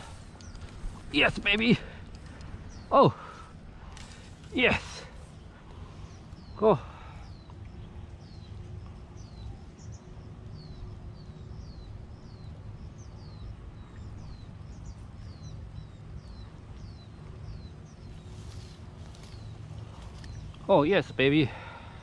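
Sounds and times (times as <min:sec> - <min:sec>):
steady low rumble: 0:00.0 - 0:22.0
bird chirping with downward sweep: 0:04.5 - 0:21.5.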